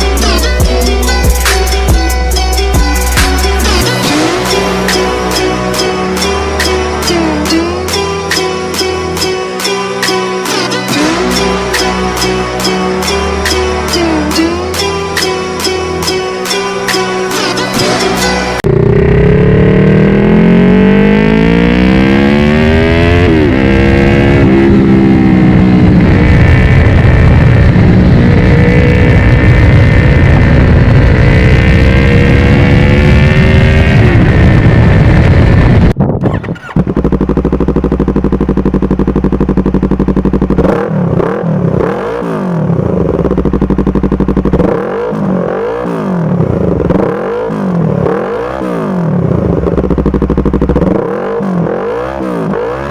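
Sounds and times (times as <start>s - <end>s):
motorcycle engine accelerating: 0.0s - 52.9s
motorcycle idling with throttle blips: 36.3s - 45.7s, 49.4s - 51.2s.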